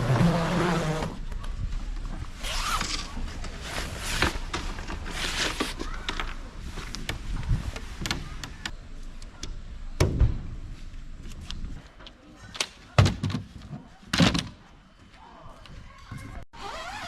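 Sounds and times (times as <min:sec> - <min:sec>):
camping gear knocks and thuds: 0:13.0 - 0:14.6.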